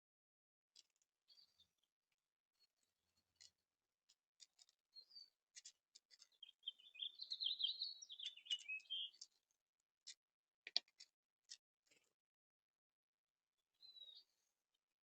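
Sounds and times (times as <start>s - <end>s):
songbird warbling: 6.4s - 9.2s.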